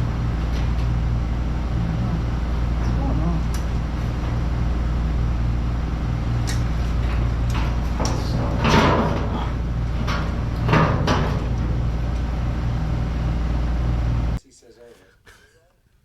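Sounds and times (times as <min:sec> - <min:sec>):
steady low hum: 0:00.0 - 0:16.0
metal parts clunking and scraping: 0:06.3 - 0:12.4.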